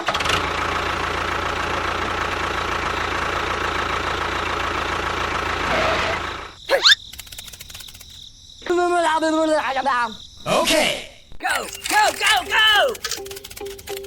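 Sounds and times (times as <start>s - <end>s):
engine rumbling: 0.0s - 8.0s
fast even clicking: 6.7s - 8.3s, 11.5s - 14.0s.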